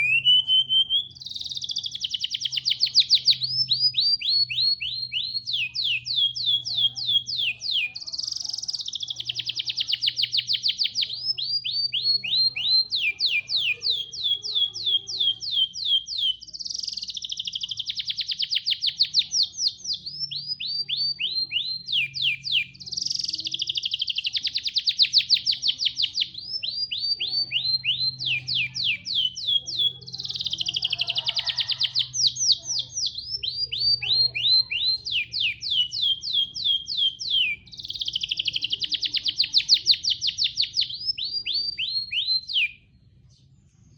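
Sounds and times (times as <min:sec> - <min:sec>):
songbird singing: 0:00.0 - 0:43.9.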